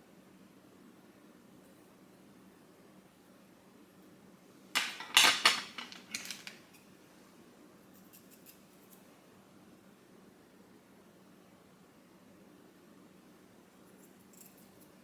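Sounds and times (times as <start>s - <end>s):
small hard objects clattering: 4.8s - 6.6s.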